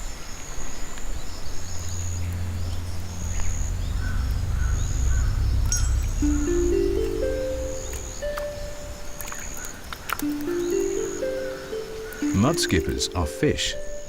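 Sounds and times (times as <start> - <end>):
low music drone: 1.2 - 14.0
high insect-like trill: 1.3 - 14.0
rising musical notes: 1.6 - 14.0.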